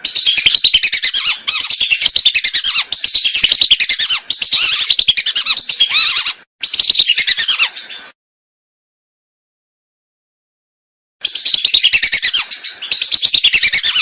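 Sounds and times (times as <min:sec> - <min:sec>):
ducks whistling: 0:00.0 - 0:08.0, 0:11.2 - 0:14.0.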